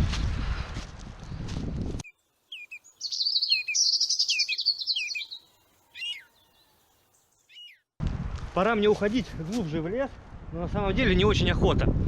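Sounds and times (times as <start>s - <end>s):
songbird warbling trill: 2.1s - 7.8s.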